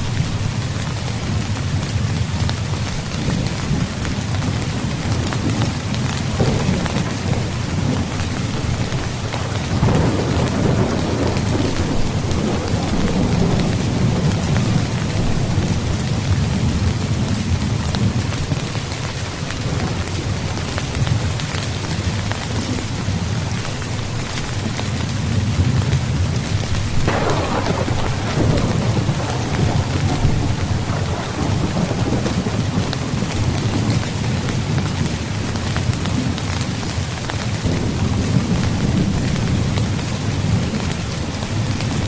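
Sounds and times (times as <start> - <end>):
rumble of thunder: 0.0 - 23.5, 24.2 - 42.0
rain drumming on a tent: 0.0 - 42.0.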